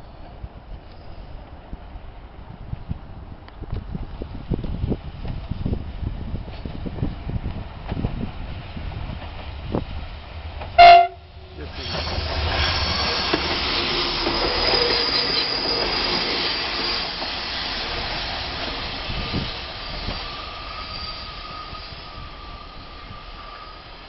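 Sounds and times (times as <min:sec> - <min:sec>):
diesel train passing: 0:00.0 - 0:24.0
wheels squealing on curve: 0:11.8 - 0:24.0.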